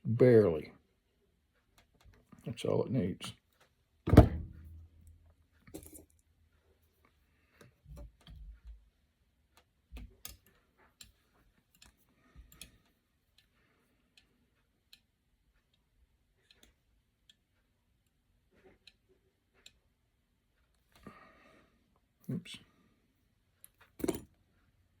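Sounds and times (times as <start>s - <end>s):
soft thumps: 4.1s - 5.1s
tools clicking and tapping: 9.6s - 13.5s.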